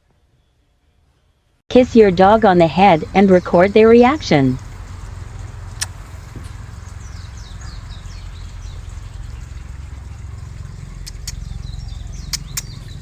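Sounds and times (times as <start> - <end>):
birds chirping: 1.7 - 13.0
steady low rumble: 1.7 - 13.0
sharp clicks: 5.8 - 6.0, 11.0 - 11.4.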